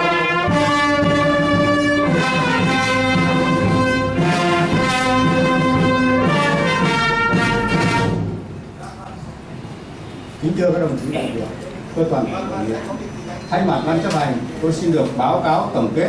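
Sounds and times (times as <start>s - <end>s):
brass music with held notes: 0.0s - 8.4s.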